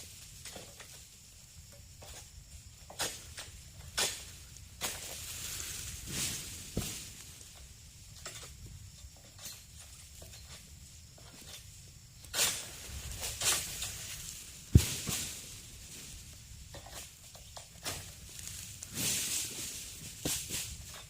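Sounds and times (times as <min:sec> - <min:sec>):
palm fronds rustling: 0:00.0 - 0:21.0
sickle swishing strokes: 0:12.3 - 0:16.2, 0:17.8 - 0:21.0.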